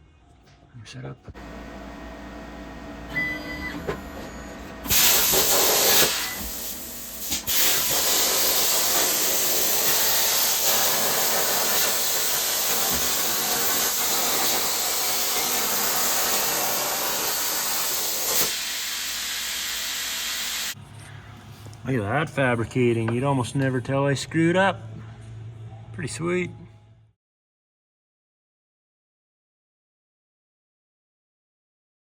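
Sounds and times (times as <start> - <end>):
plasma torch hissing: 4.8 - 20.8.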